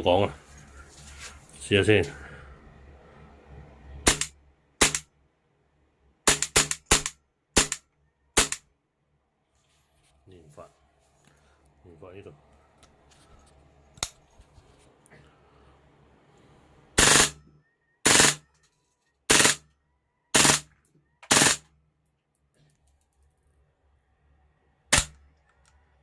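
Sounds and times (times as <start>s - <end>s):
airsoft gun bursts: 4.1s - 5.0s, 6.3s - 7.8s, 8.4s - 8.6s, 17.0s - 17.4s, 18.0s - 18.4s, 19.3s - 19.6s, 20.3s - 21.6s, 24.9s - 25.1s.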